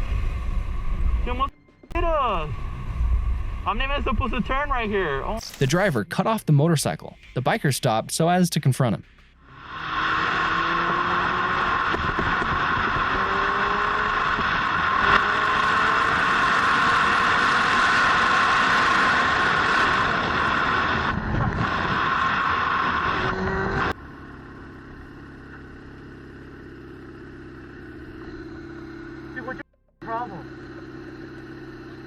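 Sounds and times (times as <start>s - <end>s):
wind rush while riding: 2.5s - 5.4s, 10.3s - 23.9s
motorcycle engine: 9.1s - 32.0s.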